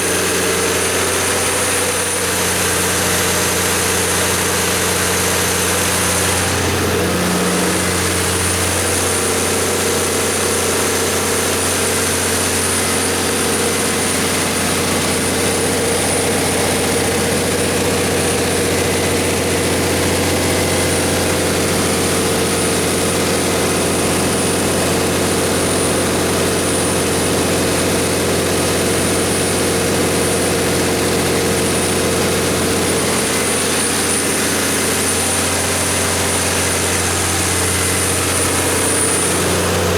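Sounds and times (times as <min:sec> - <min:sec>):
diesel generator engine humming: 0:00.0 - 0:39.9
high whine: 0:31.6 - 0:39.9.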